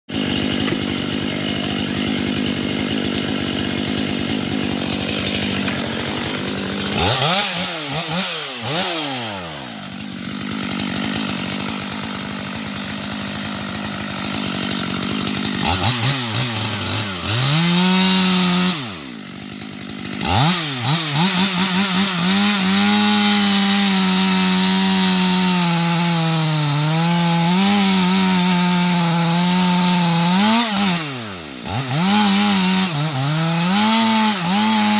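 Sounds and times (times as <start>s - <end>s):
chainsaw cutting wood: 0.1s - 34.9s.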